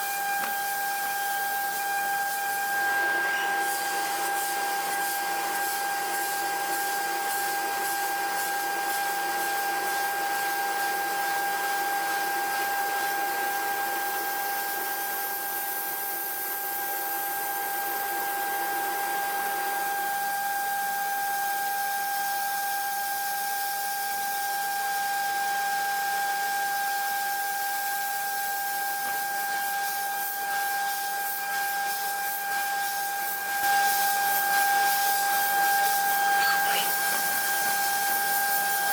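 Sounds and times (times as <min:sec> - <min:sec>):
milling machine whine: 0:33.7 - 0:38.9.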